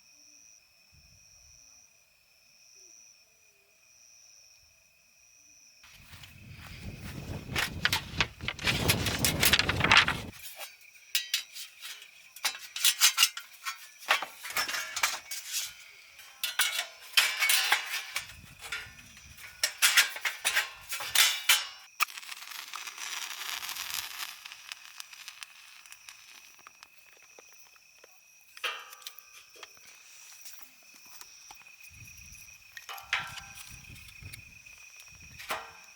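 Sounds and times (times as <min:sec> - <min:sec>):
cookware clinking and clattering: 0:11.2 - 0:21.9, 0:32.9 - 0:33.8.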